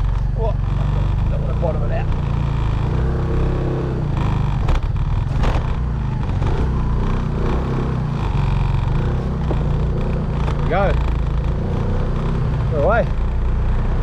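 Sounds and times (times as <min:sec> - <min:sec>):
motorbike engine at low revs: 0:00.0 - 0:14.0
sharp knocks: 0:04.2 - 0:06.5.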